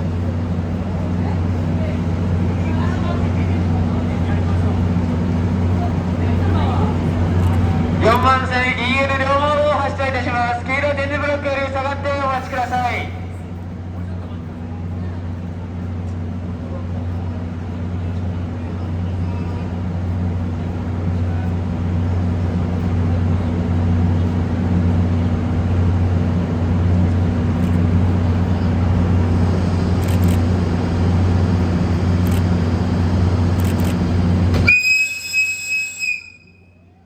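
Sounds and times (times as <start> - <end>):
electric locomotive rumbling: 0.0 - 37.0
shrill locomotive whistle: 34.5 - 36.8.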